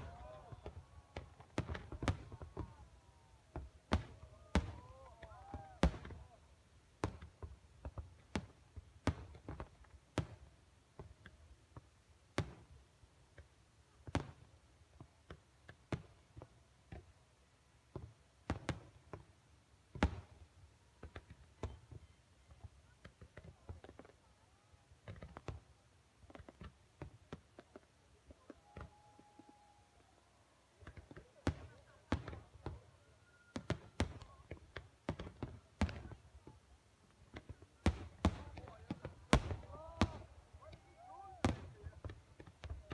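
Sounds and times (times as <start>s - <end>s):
distant fireworks bursting: 0.0s - 6.4s, 30.8s - 42.9s.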